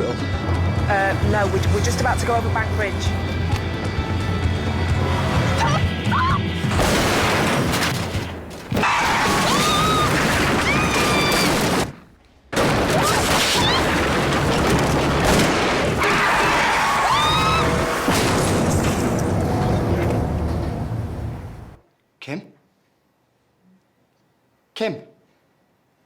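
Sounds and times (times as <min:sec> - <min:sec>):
loud car crash: 0:06.7 - 0:12.0, 0:12.6 - 0:21.8.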